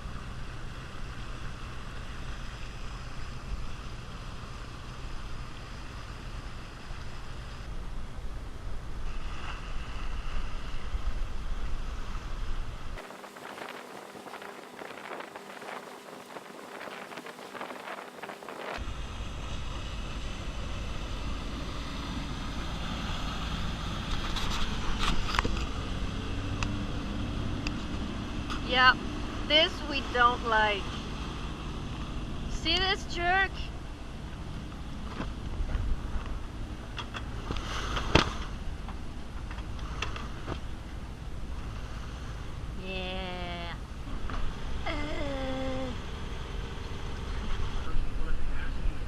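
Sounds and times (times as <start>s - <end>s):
boat engine running: 0.0s - 49.0s
water noise: 0.0s - 49.0s
wind: 0.0s - 49.0s
wind on microphone: 7.6s - 29.6s.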